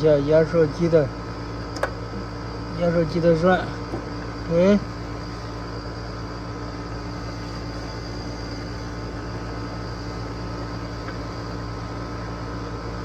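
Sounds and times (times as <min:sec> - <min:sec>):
air conditioning machinery humming: 0:00.0 - 0:13.0.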